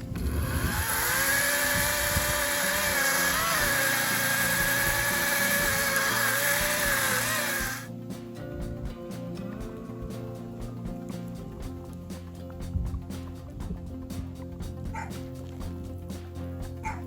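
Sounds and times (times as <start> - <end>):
chainsaw cutting: 0.0 - 7.9
background music: 0.0 - 17.0.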